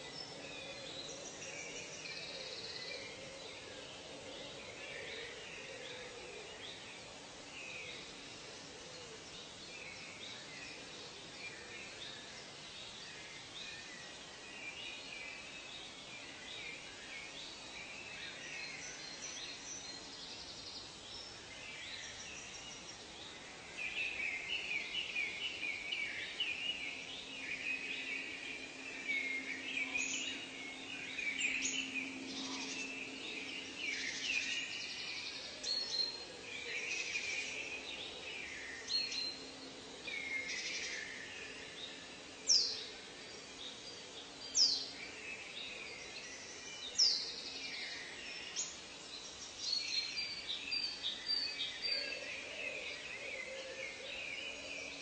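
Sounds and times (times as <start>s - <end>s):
faint background hiss: 0.0s - 55.0s.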